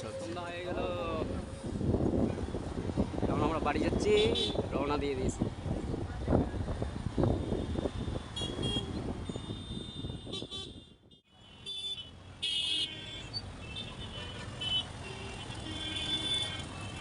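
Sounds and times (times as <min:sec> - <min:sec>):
wind: 0:00.0 - 0:17.0
vehicle horns honking: 0:04.1 - 0:04.6, 0:07.3 - 0:17.0.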